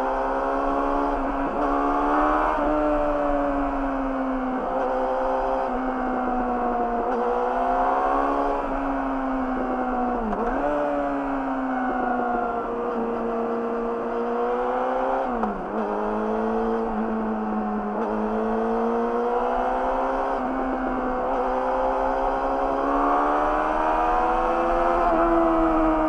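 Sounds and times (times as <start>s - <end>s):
motorcycle engine at steady revs: 0.0s - 26.0s.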